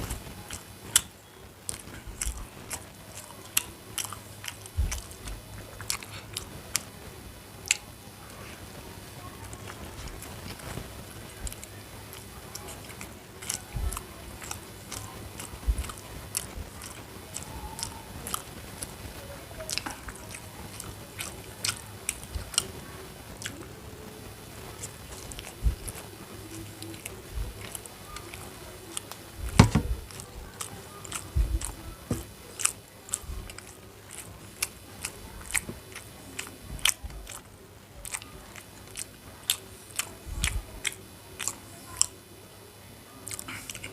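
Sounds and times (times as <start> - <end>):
person chewing food: 0.0 - 7.0, 7.6 - 8.6, 9.4 - 42.2, 43.2 - 43.9
wet mouth clicks: 0.5 - 6.9, 12.6 - 18.9, 24.8 - 42.1, 43.2 - 43.9
low thump: 29.4 - 30.0.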